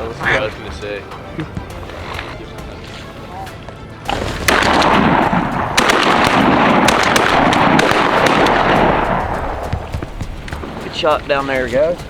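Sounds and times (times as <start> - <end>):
shotguns firing volley: 4.0 - 12.0.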